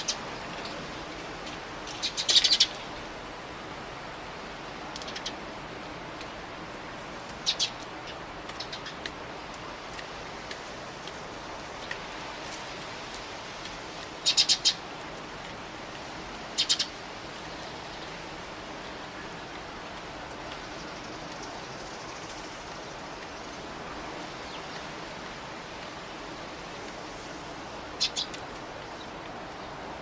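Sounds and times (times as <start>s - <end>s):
sparrows chirping: 2.0s - 2.8s, 7.4s - 7.8s, 14.2s - 14.8s, 16.6s - 17.0s, 28.0s - 28.4s.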